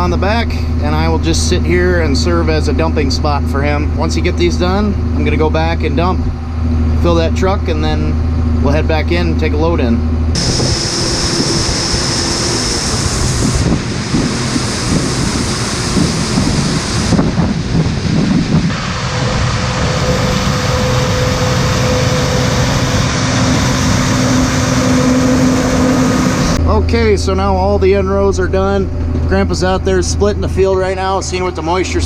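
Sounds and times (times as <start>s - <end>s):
machinery engine drone: 0.0s - 32.0s
whining tones: 10.0s - 32.0s
rushing noise: 10.4s - 27.8s.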